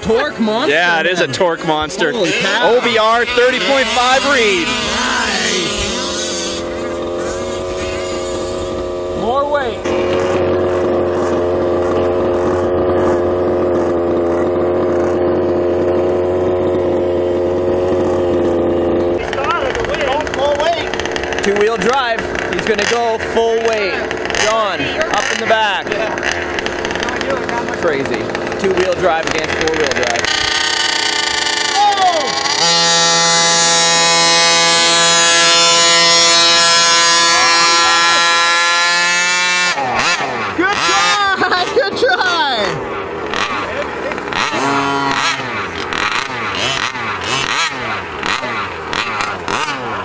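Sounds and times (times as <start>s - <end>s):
small two-stroke engine running: 0.0s - 50.0s.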